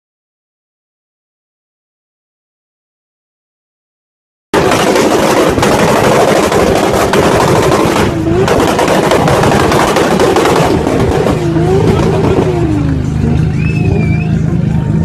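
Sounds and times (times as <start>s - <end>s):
car engine crackling: 4.6s - 15.0s.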